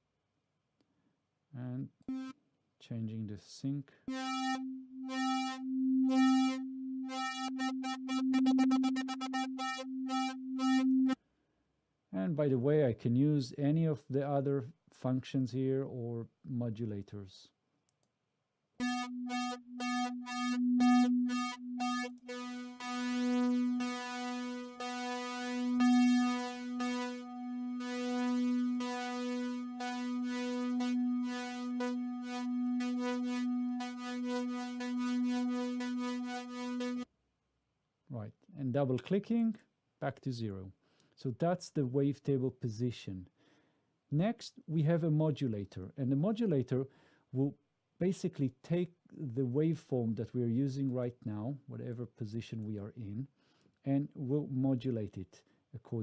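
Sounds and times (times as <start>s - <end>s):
pulsing synthesizer note: 2.1s - 2.3s, 4.1s - 11.2s, 18.8s - 37.0s.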